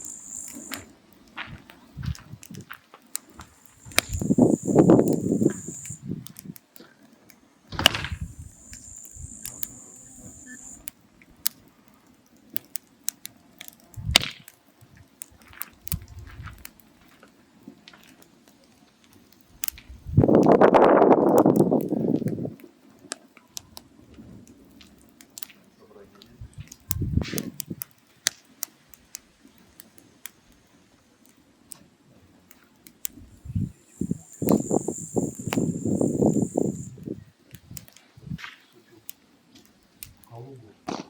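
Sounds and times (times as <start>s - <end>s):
high hiss: 0.0s - 1.0s, 3.2s - 6.6s, 7.7s - 10.9s, 33.1s - 37.3s
firewood crackling and popping: 0.0s - 41.0s.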